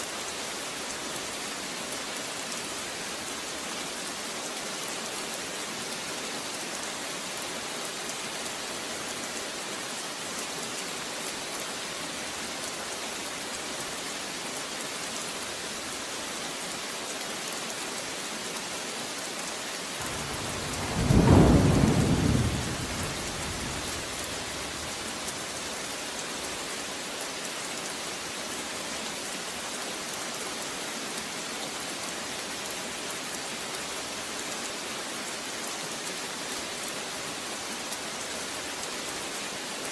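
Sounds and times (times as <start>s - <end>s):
heavy rain falling: 0.1s - 39.9s
thunder clap rumbling: 20.0s - 25.5s.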